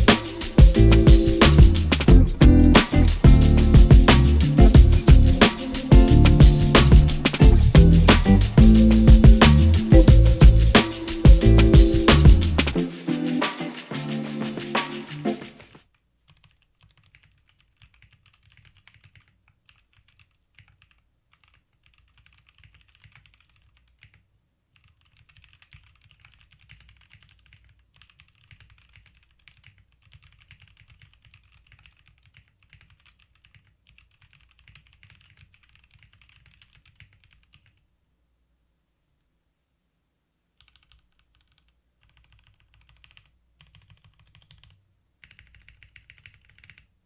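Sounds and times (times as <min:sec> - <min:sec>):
mechanical keyboard typing: 0:16.3 - 0:24.2, 0:24.8 - 0:37.8, 0:40.6 - 0:46.9.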